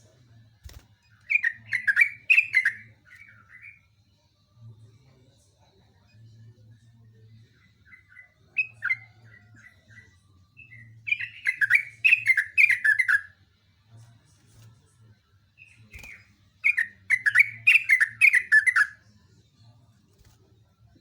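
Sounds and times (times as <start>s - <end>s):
bird singing chattering phrases: 1.3s - 3.8s, 10.6s - 13.3s, 15.6s - 19.0s.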